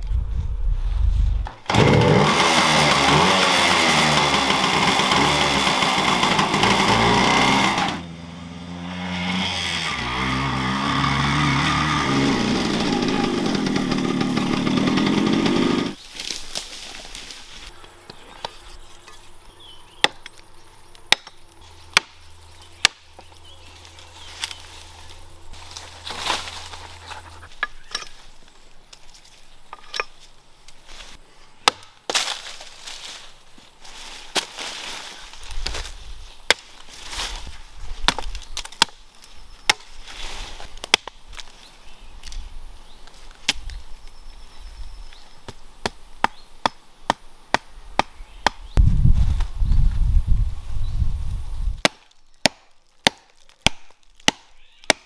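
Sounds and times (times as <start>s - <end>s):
small engine high revs: 1.7s - 16.0s.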